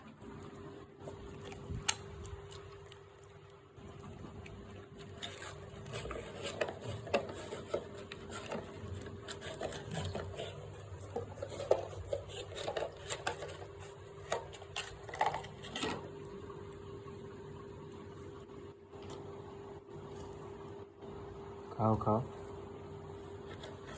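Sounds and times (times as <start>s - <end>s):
animal chewing meat: 0.0s - 18.4s.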